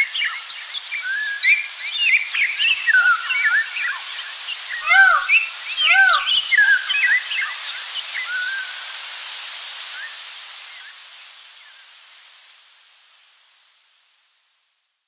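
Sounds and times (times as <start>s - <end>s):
steady hiss: 0.0s - 15.0s
birds chirping and calling: 4.8s - 6.8s.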